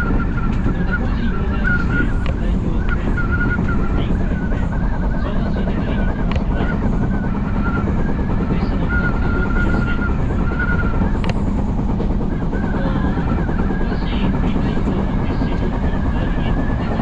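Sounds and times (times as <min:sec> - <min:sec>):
electric train rolling rumble: 0:00.0 - 0:17.0
wavering high whine: 0:00.0 - 0:17.0
sharp clicks: 0:11.2 - 0:11.5.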